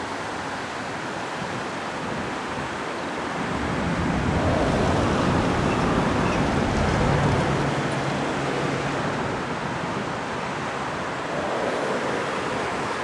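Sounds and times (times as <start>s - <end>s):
rushing background noise: 0.0s - 13.0s
electric train rumble: 4.0s - 8.2s.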